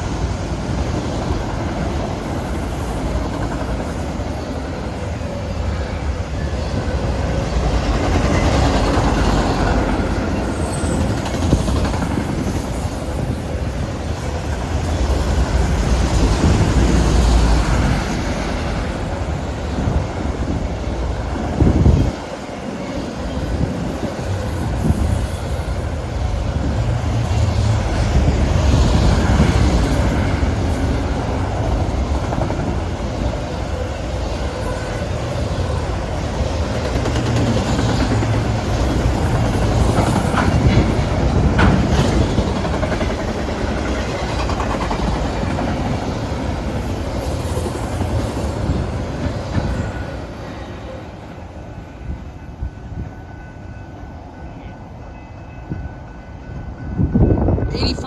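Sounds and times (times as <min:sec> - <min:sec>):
freight train rumbling on rails: 0:00.0 - 0:58.0
wheels clicking over rails: 0:36.6 - 0:45.9.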